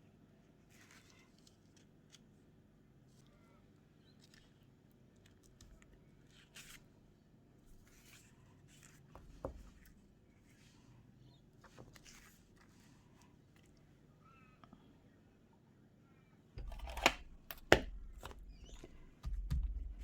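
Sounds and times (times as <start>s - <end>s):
paper rustling: 0.7s - 2.3s, 11.6s - 13.7s.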